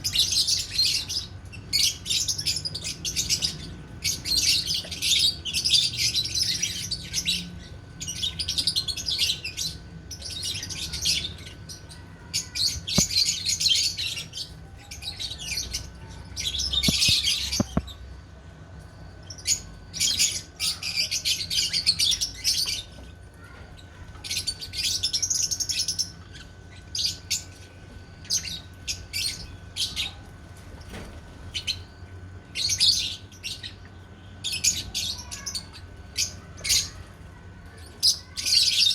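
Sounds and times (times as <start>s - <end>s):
lovebirds chirping: 0.0s - 18.2s, 30.8s - 37.2s.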